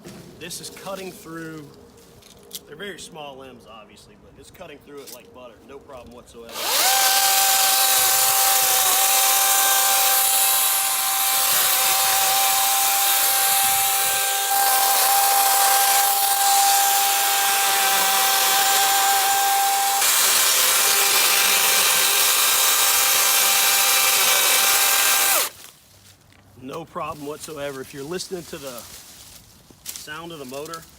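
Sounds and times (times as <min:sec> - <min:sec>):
chainsaw whining while cutting: 0:06.5 - 0:25.6.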